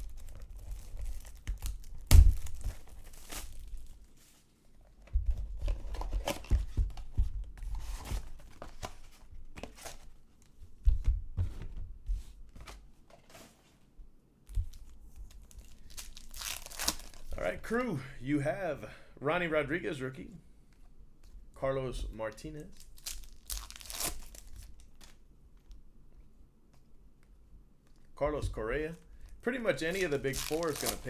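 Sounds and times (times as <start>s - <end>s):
packaging tearing and crinkling: 0.0s - 4.1s, 14.8s - 17.4s, 22.7s - 25.2s, 29.8s - 31.0s.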